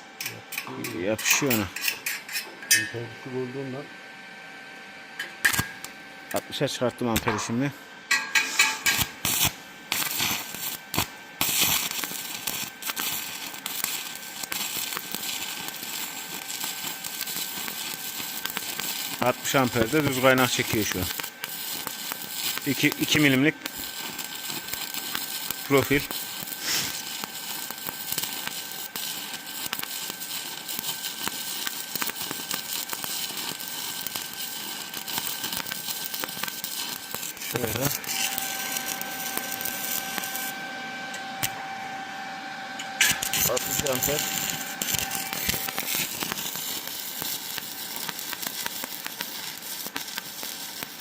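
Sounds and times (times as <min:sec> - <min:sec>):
welding arc crackling: 0:05.2 - 0:40.7, 0:41.4 - 0:41.6, 0:42.8 - 0:51.0.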